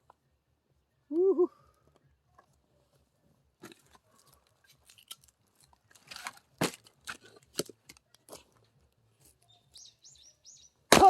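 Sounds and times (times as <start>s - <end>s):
axe splitting firewood: 4.7s - 8.6s.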